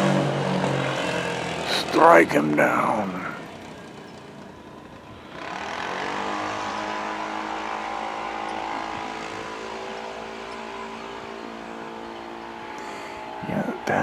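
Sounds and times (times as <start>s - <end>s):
motorcycle engine running: 0.0s - 1.7s.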